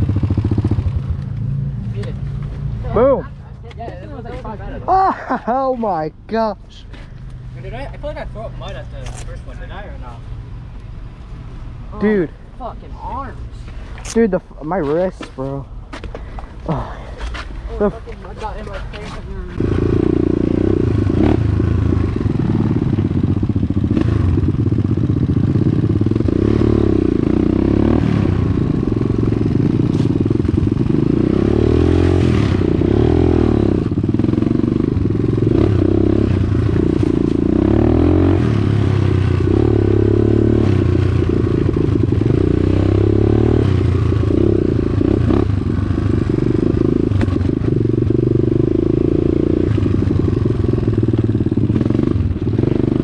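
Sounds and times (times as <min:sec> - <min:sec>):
dirt bike engine revving: 0:19.6 - 0:53.0.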